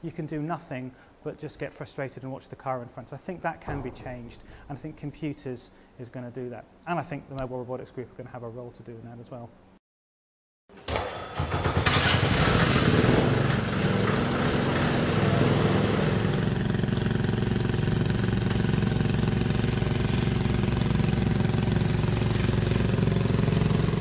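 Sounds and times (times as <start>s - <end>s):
rally car engine revving and idling: 12.2s - 17.1s.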